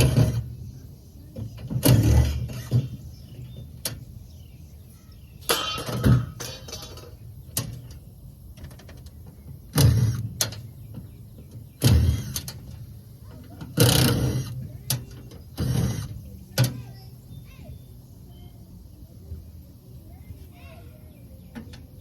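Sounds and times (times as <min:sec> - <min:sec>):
tools working on metal: 0:11.8 - 0:12.8, 0:13.4 - 0:16.2.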